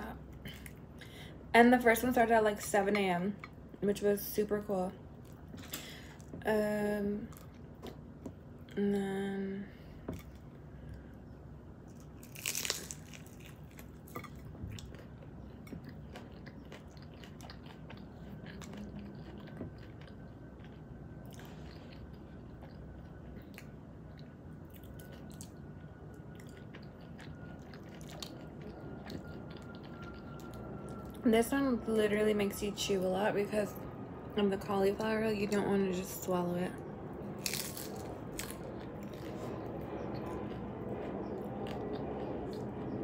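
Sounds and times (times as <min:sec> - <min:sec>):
chewing with small crunches: 0:07.2 - 0:08.8, 0:09.9 - 0:31.2, 0:37.2 - 0:43.0
loud crunch of a bite: 0:11.9 - 0:15.0, 0:37.4 - 0:39.4.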